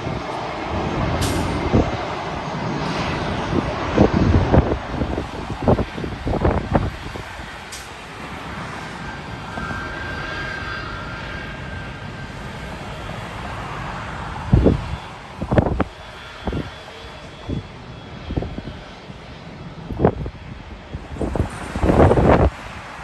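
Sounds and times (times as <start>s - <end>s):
jet engines passing: 0.0s - 23.0s
wind buffeting microphone: 0.0s - 23.0s.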